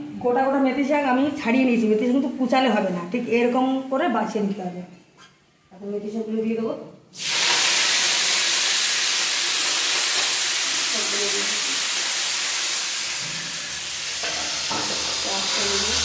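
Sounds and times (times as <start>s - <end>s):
leaves sizzling in hot oil: 7.2s - 16.0s.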